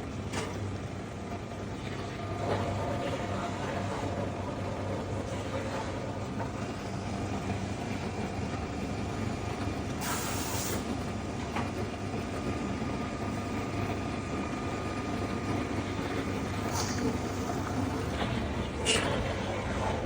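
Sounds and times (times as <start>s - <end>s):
factory machinery humming: 0.0s - 20.0s
hiss of air or steam: 10.0s - 10.8s.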